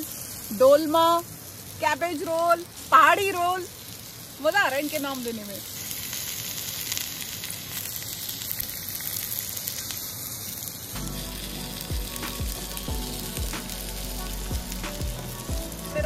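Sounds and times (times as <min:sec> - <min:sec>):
food sizzling on grill plate: 0:00.0 - 0:16.0
background music with steady beat: 0:11.0 - 0:16.0.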